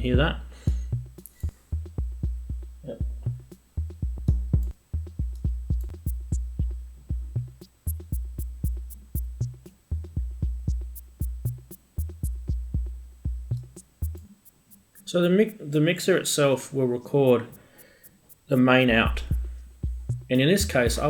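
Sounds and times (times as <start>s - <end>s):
deep kick drums: 0.0s - 1.2s, 1.8s - 14.3s, 18.9s - 21.0s
sharp clicky drum hits: 2.0s - 15.7s, 17.3s - 21.0s.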